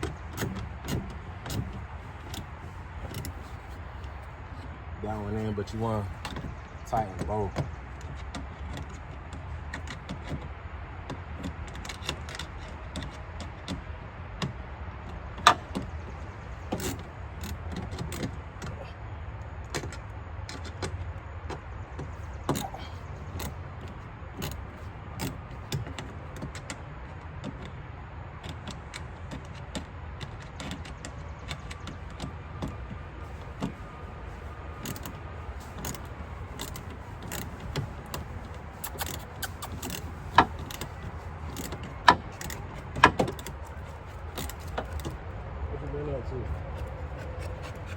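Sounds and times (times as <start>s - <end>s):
small clicks and clinks: 34.8s - 45.2s.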